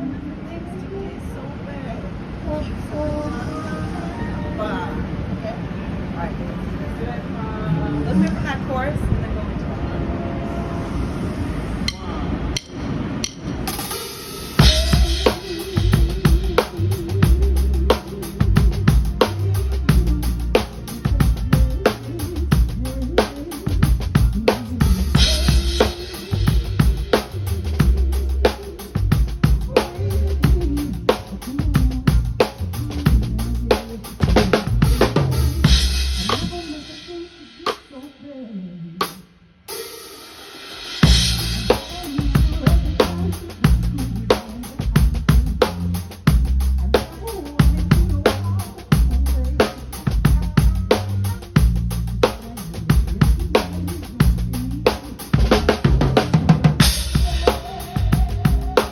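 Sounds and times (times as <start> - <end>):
drum kit: 12.6 - 38.1, 39.0 - 58.9
live band playing: 13.4 - 38.0, 39.0 - 58.9.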